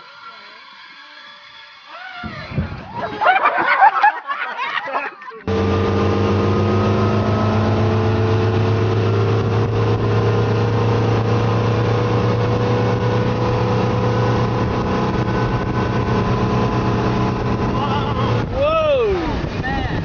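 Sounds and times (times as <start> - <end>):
motorboat engine running: 5.5 - 20.0.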